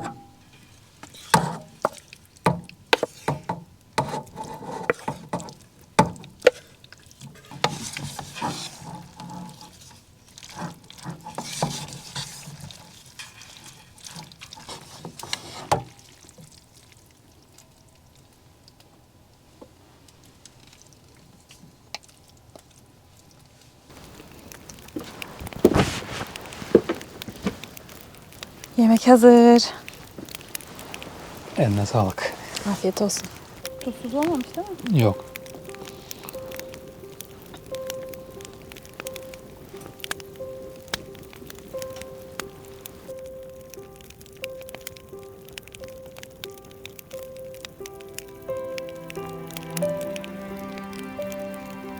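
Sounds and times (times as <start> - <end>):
utensil scraping in a pan: 0.0 - 2.2, 2.9 - 5.6, 6.4 - 16.0, 23.9 - 34.6.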